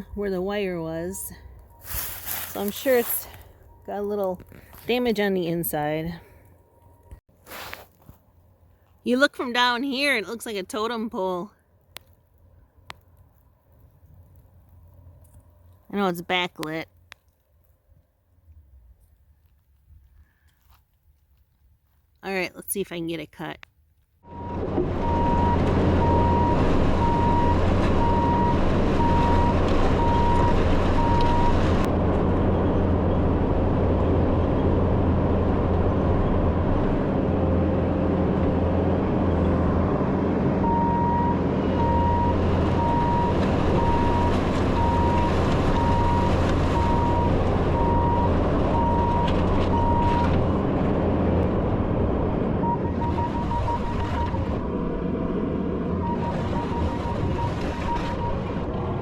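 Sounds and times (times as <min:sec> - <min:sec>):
backup alarm beeping: 0:00.4 - 0:04.3, 0:24.3 - 0:31.6, 0:40.6 - 0:50.3, 0:52.6 - 0:54.4, 0:56.0 - 0:58.6
diesel engine running: 0:24.2 - 0:59.0.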